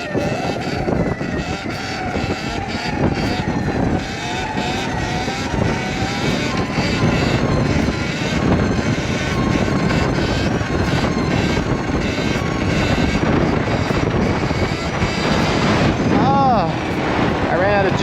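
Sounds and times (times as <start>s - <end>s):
electric dirt bike motor whine: 0.0s - 18.0s.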